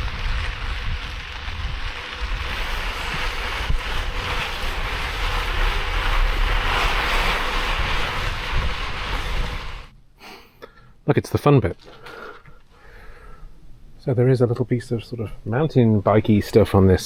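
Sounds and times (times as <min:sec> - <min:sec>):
wind rushing over microphone: 0:00.0 - 0:09.9.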